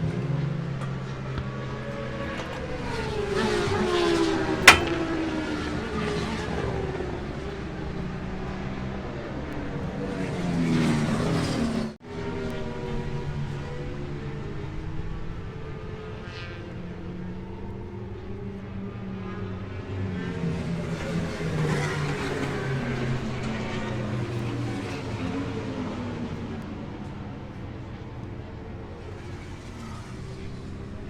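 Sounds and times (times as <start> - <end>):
sharp crack: 4.6 - 5.1.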